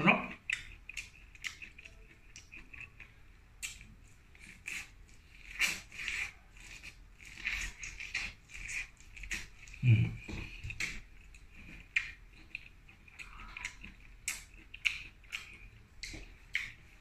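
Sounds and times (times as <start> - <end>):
wet mouth clicks: 0.4 - 3.0, 11.9 - 16.8.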